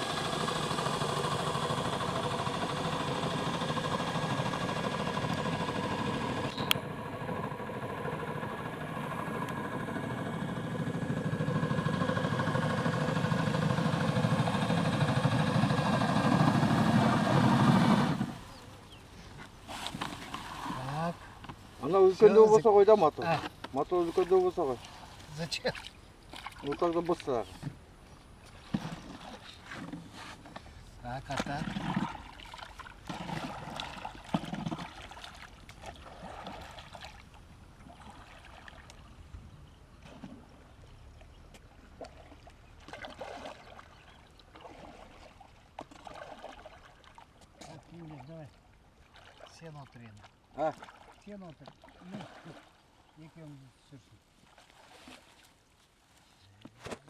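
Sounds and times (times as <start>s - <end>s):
drill-driven boat motor running: 0.0s - 18.6s
water lapping around boat: 0.0s - 57.0s
small splashes: 17.2s - 27.7s, 28.4s - 30.1s, 31.0s - 39.3s, 39.9s - 57.0s.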